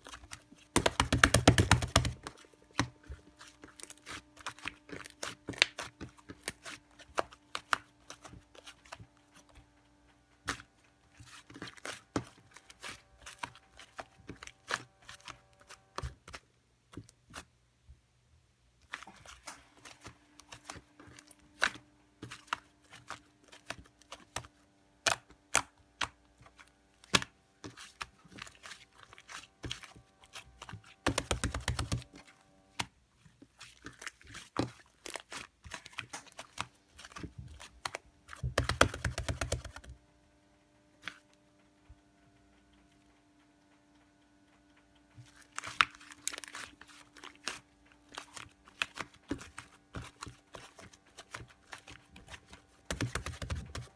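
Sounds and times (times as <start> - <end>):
slime squished by hand: 27.1 - 32.2.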